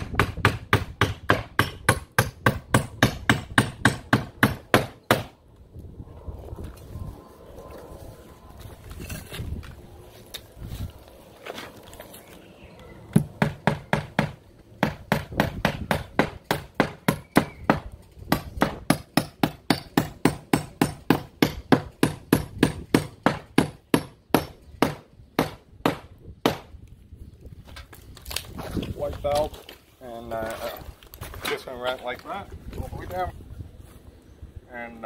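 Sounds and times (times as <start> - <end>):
hammer driving nails into wood: 0.0 - 5.3, 13.2 - 26.7.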